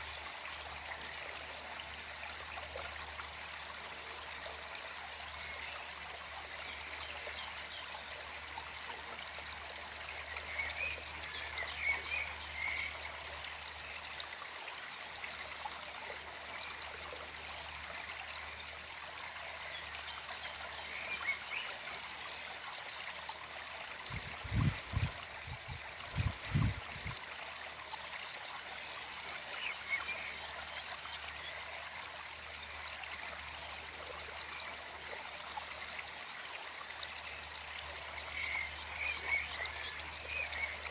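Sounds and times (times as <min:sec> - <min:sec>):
forest stream flowing: 0:00.0 - 0:40.9.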